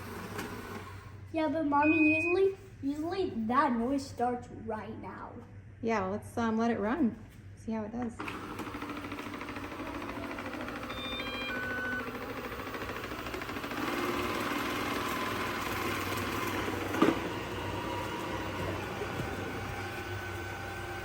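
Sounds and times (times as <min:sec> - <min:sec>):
robot vacuum humming: 0:08.2 - 0:21.0.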